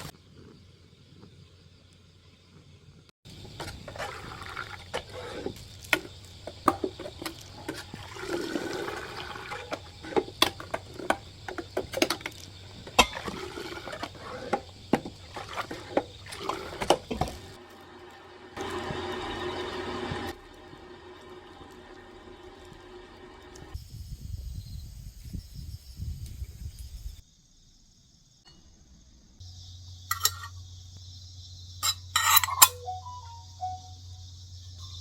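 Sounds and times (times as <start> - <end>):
liquid sloshing and splashing: 3.5 - 17.6.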